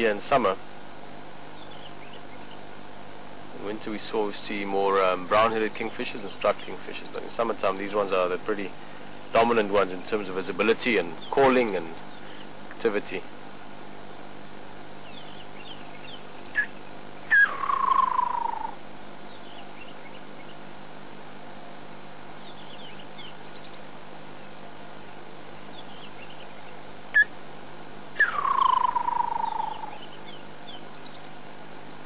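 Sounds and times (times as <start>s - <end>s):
faint high bird chirps: 15.0s - 20.6s, 28.2s - 31.3s
kingfisher call with falling trill: 17.3s - 18.8s, 28.2s - 30.0s.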